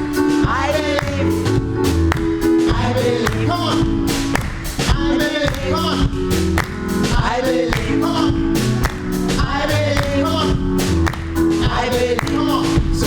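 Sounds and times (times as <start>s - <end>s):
choir singing: 0.0s - 1.6s, 2.5s - 4.0s, 7.1s - 10.6s, 11.6s - 13.0s
bass: 0.0s - 13.0s
keyboard: 0.0s - 13.0s
steady drum beat: 0.0s - 13.0s.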